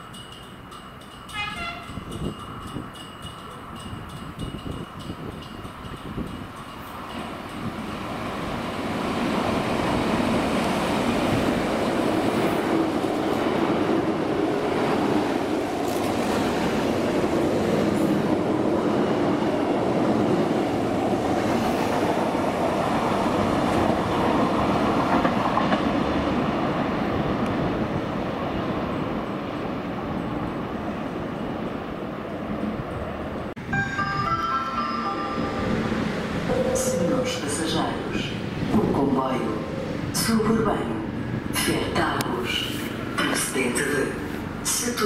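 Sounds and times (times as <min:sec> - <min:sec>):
train wheels rumbling on rails: 0:00.0 - 0:33.5.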